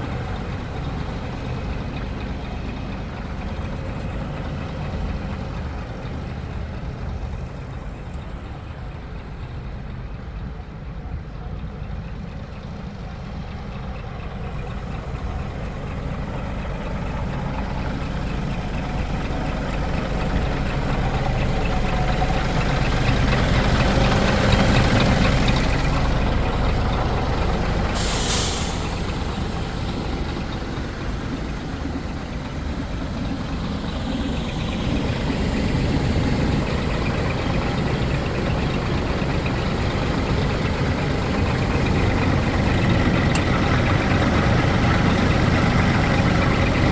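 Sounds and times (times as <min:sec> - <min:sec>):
diesel truck engine running: 0:00.0 - 0:46.9
air brake hiss: 0:27.9 - 0:29.2.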